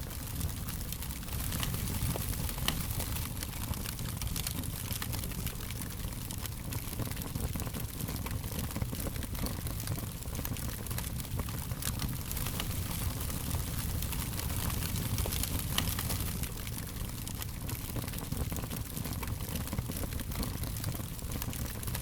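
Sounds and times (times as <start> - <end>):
fire crackling: 0.0 - 22.0.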